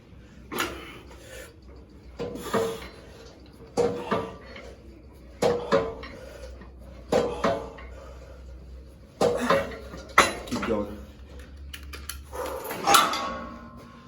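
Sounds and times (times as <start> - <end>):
gym weights clanking: 2.0 - 8.2, 9.1 - 11.0, 12.5 - 13.9.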